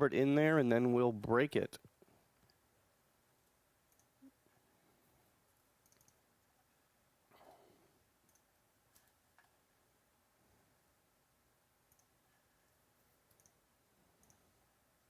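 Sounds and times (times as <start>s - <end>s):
faint clicks: 3.9s - 4.3s, 5.8s - 6.2s, 8.2s - 9.6s, 11.9s - 12.2s, 13.2s - 14.5s.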